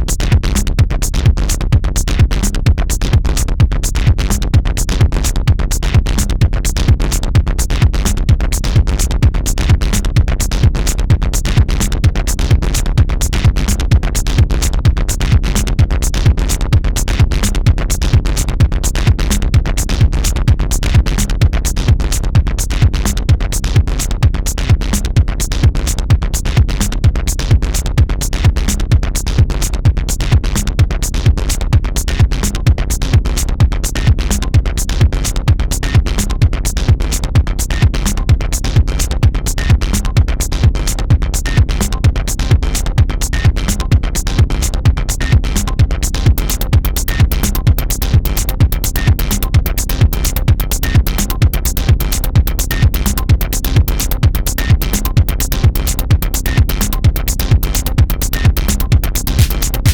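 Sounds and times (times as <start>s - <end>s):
electronic dance music: 46.3s - 59.9s.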